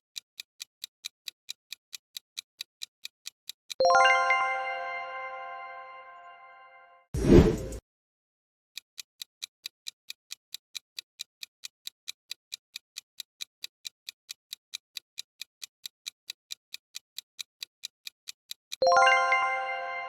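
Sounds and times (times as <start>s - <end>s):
clock ticking: 0.2s - 4.0s, 9.0s - 19.3s
bright bell chime: 18.8s - 20.0s.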